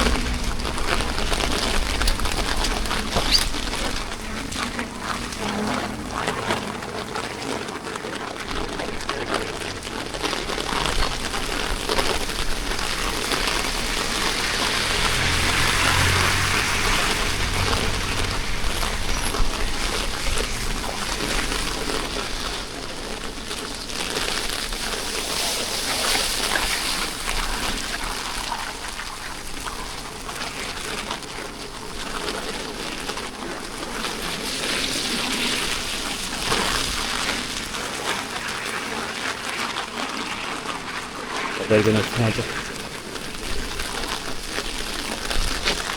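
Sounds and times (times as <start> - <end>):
low rumble: 0.0 - 6.4
rain falling: 0.0 - 45.9
water trickling and splashing: 0.0 - 45.9.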